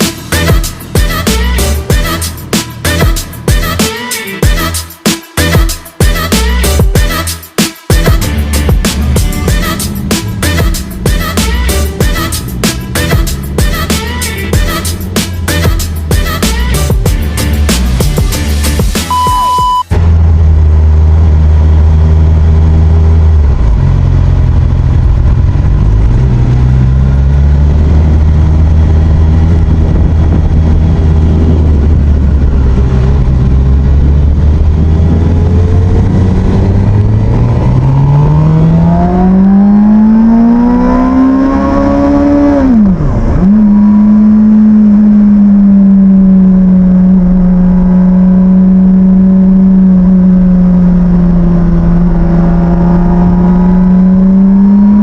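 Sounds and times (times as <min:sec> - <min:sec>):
motorcycle engine accelerating: 0:00.0 - 0:03.8, 0:07.9 - 0:55.0.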